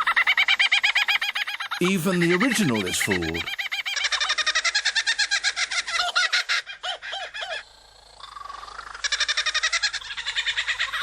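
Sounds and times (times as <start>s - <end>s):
kookaburra laughing call: 8.7s - 11.0s.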